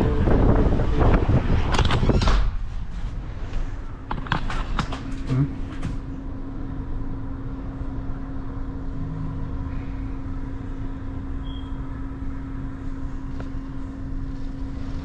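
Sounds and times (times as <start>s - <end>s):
wind rumbling against microphone: 0.0s - 3.5s
low hum: 0.0s - 15.0s.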